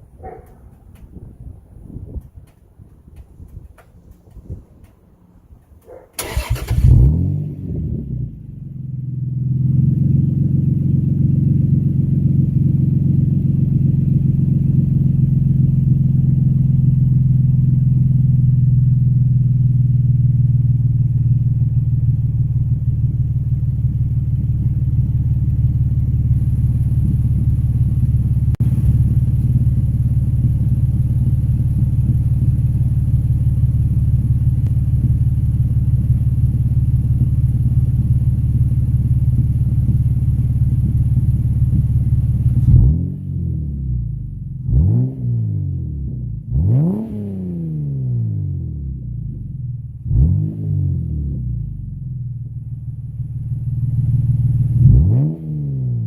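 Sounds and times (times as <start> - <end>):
car engine idling deeply: 0.0 - 44.7
car engine starting: 2.2 - 56.0.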